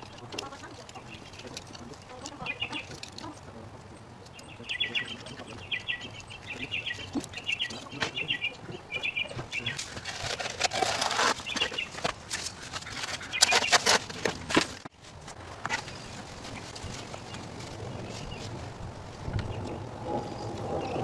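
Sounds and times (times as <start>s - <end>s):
songbird chattering: 0.4s - 3.4s, 4.3s - 9.9s
hands scraping in dirt: 9.4s - 18.6s
shovel scraping soil: 9.6s - 14.9s.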